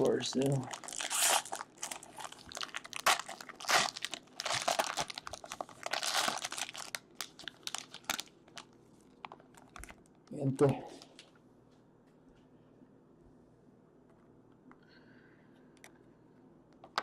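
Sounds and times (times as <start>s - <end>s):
card pack wrapper crinkling and tearing: 0.0s - 10.0s.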